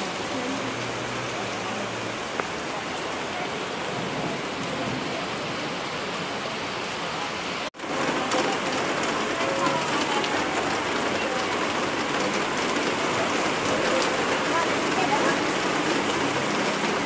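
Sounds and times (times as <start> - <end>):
heavy rain on street: 0.0 - 17.0.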